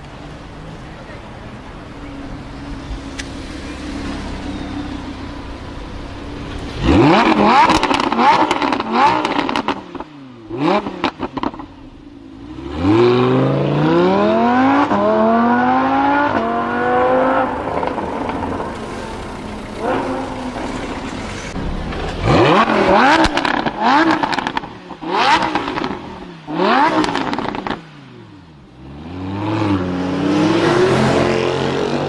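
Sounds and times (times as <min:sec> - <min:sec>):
car engine idling: 0:00.0 - 0:12.4, 0:16.4 - 0:28.7
car engine revving with crackles: 0:00.0 - 0:32.0
car accelerating hard: 0:01.8 - 0:11.6, 0:12.4 - 0:28.0, 0:28.8 - 0:32.0.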